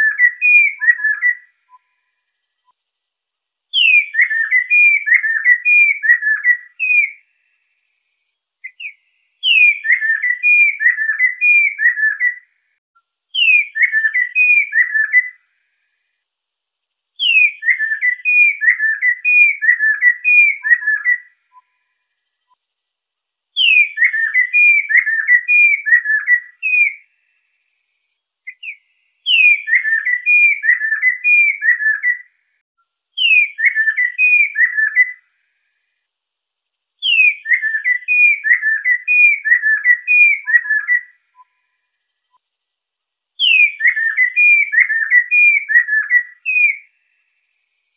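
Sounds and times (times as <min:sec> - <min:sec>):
bird singing whistled phrases: 0:00.0 - 0:02.1, 0:03.7 - 0:07.3, 0:08.6 - 0:12.5, 0:13.3 - 0:15.4, 0:17.2 - 0:21.9, 0:23.6 - 0:27.1, 0:28.4 - 0:32.3, 0:33.2 - 0:35.2, 0:37.0 - 0:41.8, 0:43.4 - 0:47.1.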